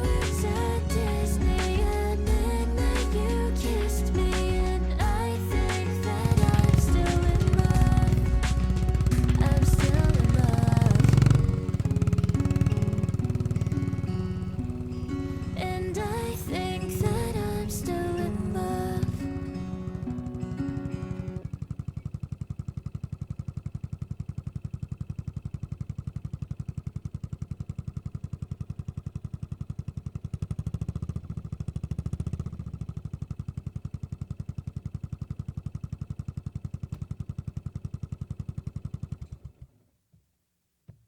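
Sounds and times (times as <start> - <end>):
motorcycle engine idling: 0.0 - 39.8.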